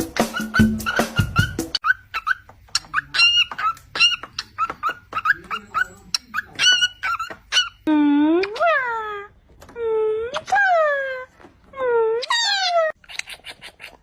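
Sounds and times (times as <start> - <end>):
birds chirping squeakily: 0.0 - 9.2, 12.1 - 14.0.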